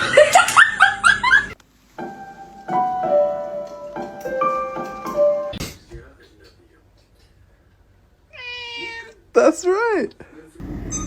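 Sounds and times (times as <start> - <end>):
held keyboard notes: 2.0 - 5.6.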